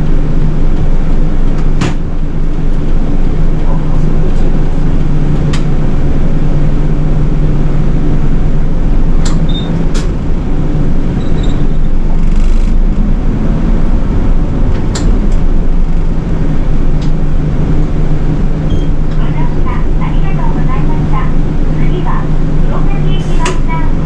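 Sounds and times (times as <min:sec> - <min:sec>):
bus engine hum: 0:00.0 - 0:24.0.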